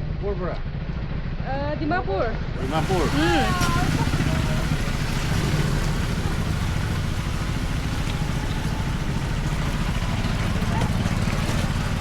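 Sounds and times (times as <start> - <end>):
motorcycle engine running: 2.6 - 12.0.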